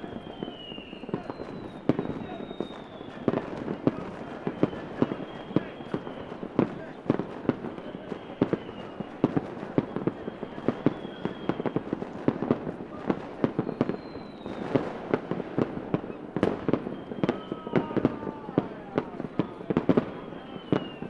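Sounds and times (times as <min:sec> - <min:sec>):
fireworks bangs and pops: 0:00.0 - 0:21.0
fireworks whistling: 0:00.0 - 0:21.0.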